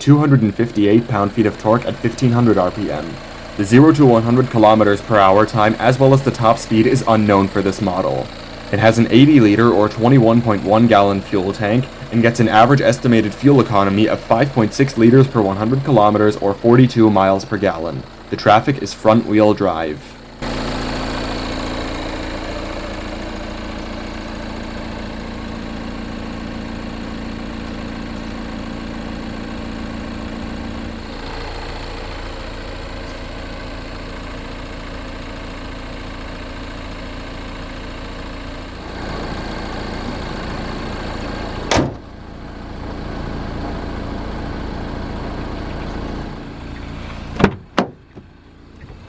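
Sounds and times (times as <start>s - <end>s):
diesel engine idling: 0.0s - 49.0s
sharp bang: 41.7s - 42.1s.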